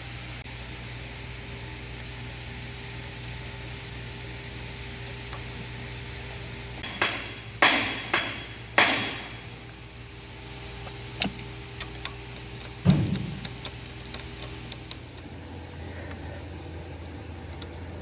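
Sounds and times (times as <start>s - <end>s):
low hum: 5.3s - 18.0s
sharp metallic knocks: 6.8s - 9.4s.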